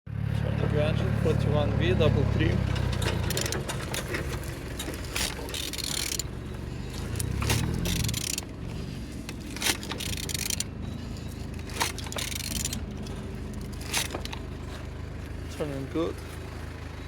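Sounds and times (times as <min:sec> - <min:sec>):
metal clinks and scrapes: 0:02.4 - 0:15.5.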